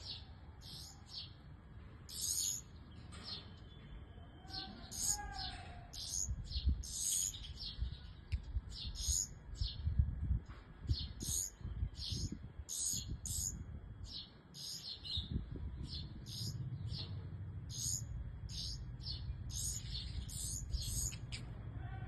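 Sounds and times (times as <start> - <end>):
small birds chirping: 0.0 - 10.1, 10.8 - 21.6
low rumble: 15.2 - 21.8.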